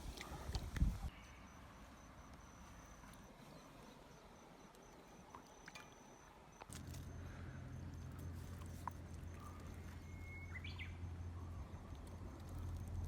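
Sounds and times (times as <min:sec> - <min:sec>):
faint high insect trill: 0:01.1 - 0:13.0.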